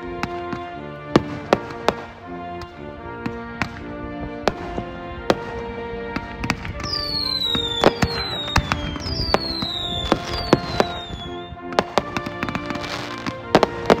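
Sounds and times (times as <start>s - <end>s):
fireworks bangs and pops: 0.0s - 14.0s
fireworks crackling: 0.0s - 14.0s
music playing: 0.0s - 14.0s
fireworks whistles falling in pitch: 6.8s - 14.0s.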